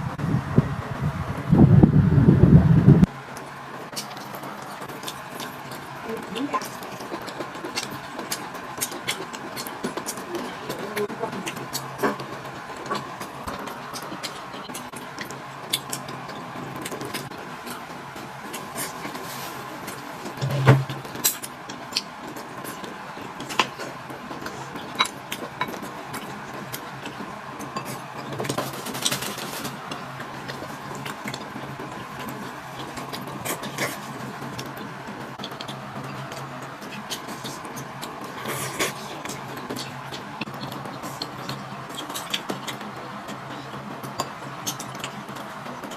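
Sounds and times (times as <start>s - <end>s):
louder knock: 20.4s - 21.0s.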